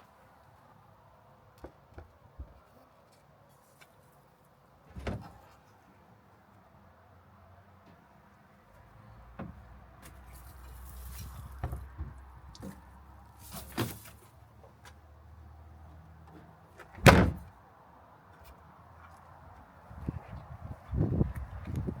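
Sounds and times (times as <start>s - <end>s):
light knocks and clunks: 1.6s - 2.7s, 4.9s - 5.6s, 9.3s - 10.4s, 11.1s - 15.0s.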